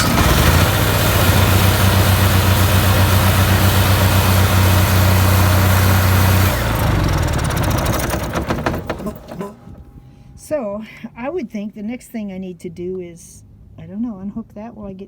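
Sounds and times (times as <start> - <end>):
generator engine running: 0.0 - 10.3.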